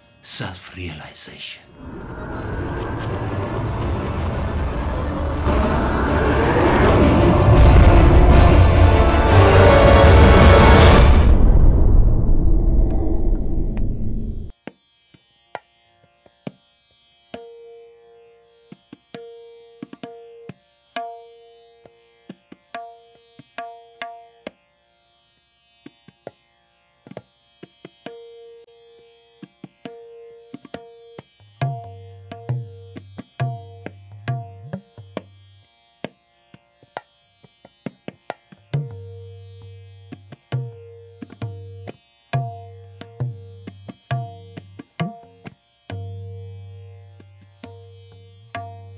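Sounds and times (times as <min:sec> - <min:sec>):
steady held drone: 0:00.2 - 0:14.5
deep bass notes: 0:01.7 - 0:14.5.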